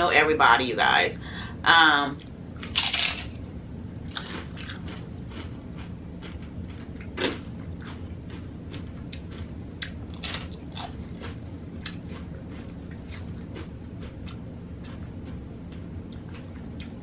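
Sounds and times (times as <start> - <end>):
person crunching tortilla chip: 2.6 - 3.4, 4.1 - 13.2.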